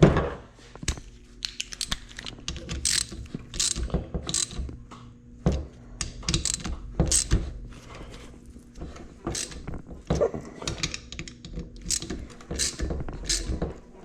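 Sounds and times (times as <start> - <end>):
ratchet clicking: 1.8 - 4.6, 6.0 - 7.4, 9.3 - 9.7, 10.8 - 13.6
metal tools clinking and scraping: 9.3 - 9.7.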